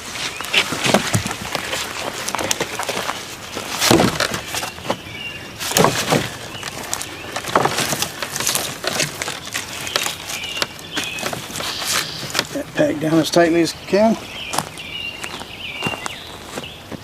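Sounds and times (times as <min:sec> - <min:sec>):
twigs crackling and rustling: 0:00.0 - 0:16.7.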